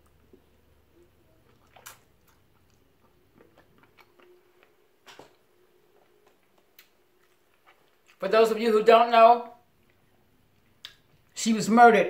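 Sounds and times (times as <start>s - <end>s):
person chewing: 0.0s - 8.2s
mouth smacks and clicks: 1.5s - 5.2s, 10.6s - 11.3s.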